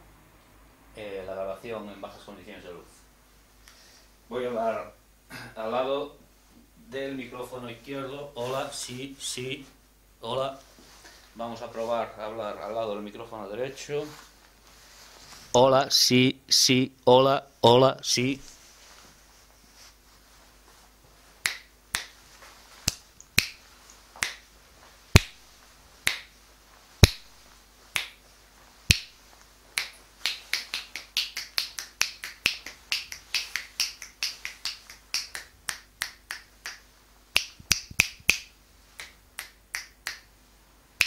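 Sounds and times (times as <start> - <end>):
finger snaps: 21.4 - 22.2, 22.8 - 24.5, 25.2 - 25.4, 26.0 - 26.3, 27.0 - 27.4, 28.0 - 28.2, 28.9 - 29.1, 29.8 - 40.3.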